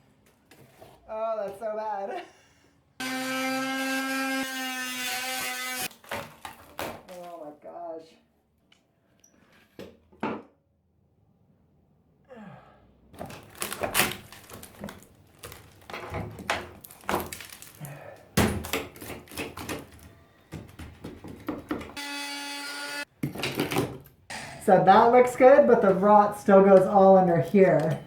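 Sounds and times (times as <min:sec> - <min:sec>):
wood knocking and cracking: 0:13.2 - 0:17.8, 0:18.4 - 0:22.0.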